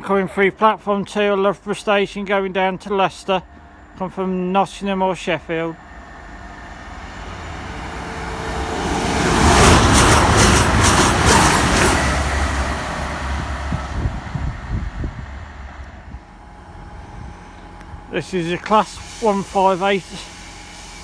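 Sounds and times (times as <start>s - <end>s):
train passing: 0.0s - 21.0s
rail clatter: 6.9s - 16.2s.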